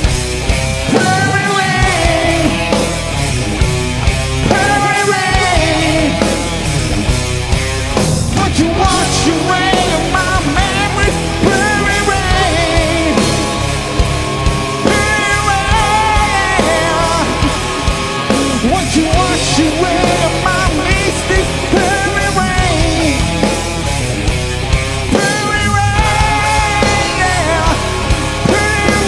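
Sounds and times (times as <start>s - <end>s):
bending lead guitar line: 0.0s - 29.0s
hard rock band playing: 0.0s - 29.0s.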